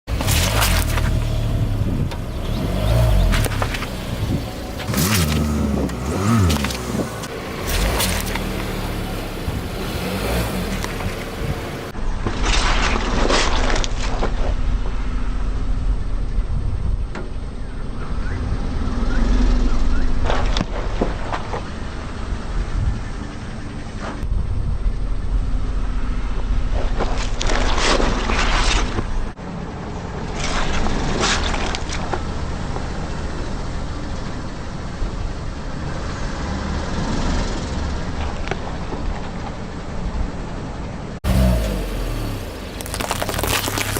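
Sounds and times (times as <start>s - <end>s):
car engine rumbling: 0.0s - 43.9s
tyre crushing something: 42.7s - 43.9s.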